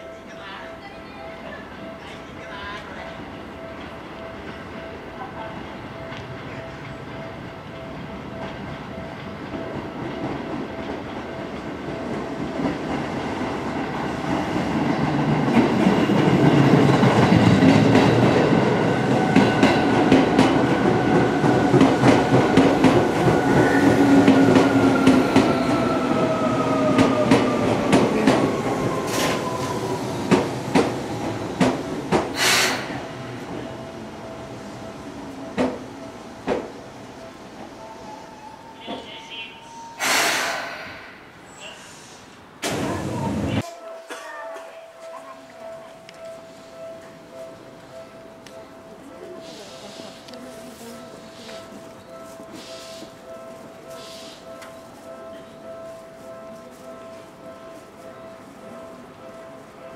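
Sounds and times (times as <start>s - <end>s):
train clanks: 0.0s - 37.9s
brake hiss: 32.4s - 33.0s, 40.0s - 42.4s, 53.9s - 54.5s.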